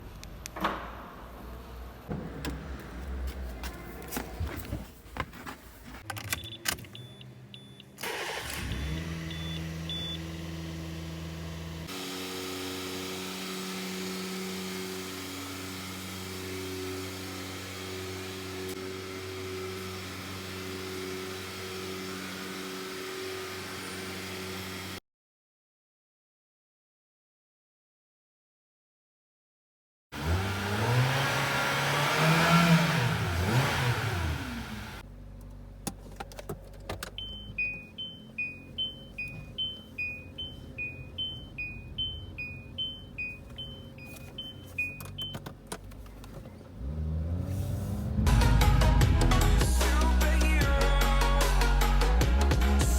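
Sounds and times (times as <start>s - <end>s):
short beeps: 37.2s - 45.4s.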